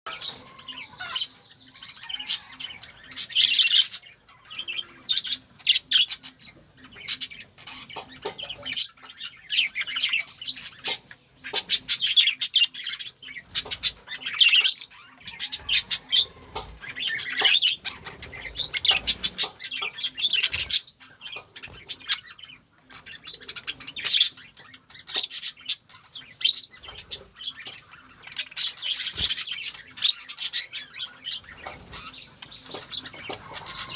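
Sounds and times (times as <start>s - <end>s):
budgerigars chirping: 0.1s - 33.9s.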